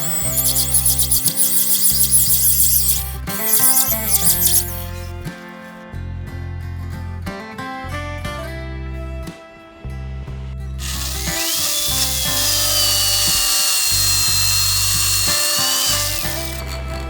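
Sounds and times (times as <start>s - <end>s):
electric drill motor whining: 0.0s - 5.1s, 10.8s - 17.0s
background music: 0.0s - 17.0s.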